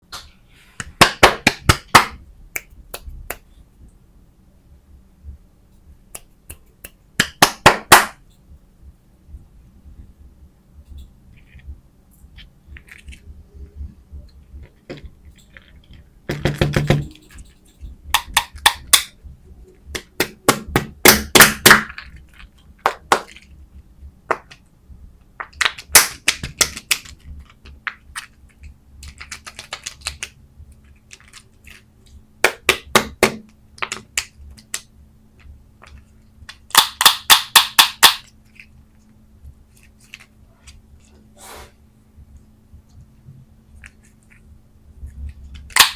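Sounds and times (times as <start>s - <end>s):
candy packaging taps and clicks: 0.8s - 3.4s, 6.1s - 8.2s, 18.1s - 19.1s, 19.9s - 23.5s, 24.2s - 31.8s, 32.4s - 38.7s.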